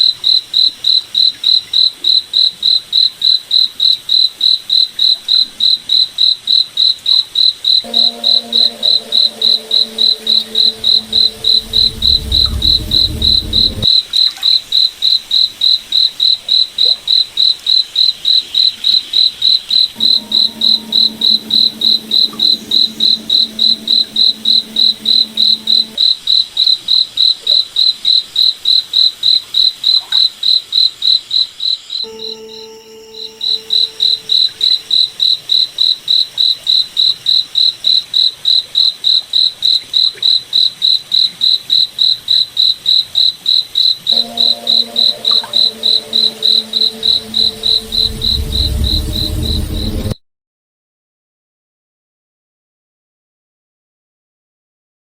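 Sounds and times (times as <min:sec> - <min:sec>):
low droning hum: 0:07.9 - 0:13.9, 0:20.0 - 0:26.0, 0:46.6 - 0:50.2.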